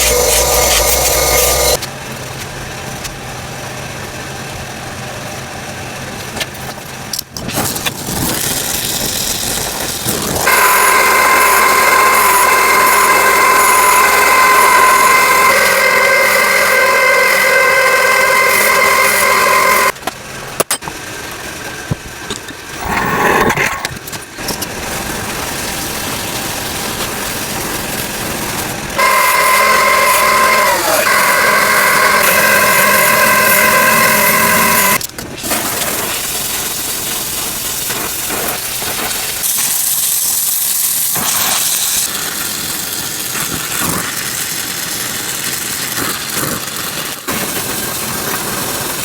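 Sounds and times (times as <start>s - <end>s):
tattoo machine buzzing: 0.0s - 1.8s, 29.0s - 35.0s.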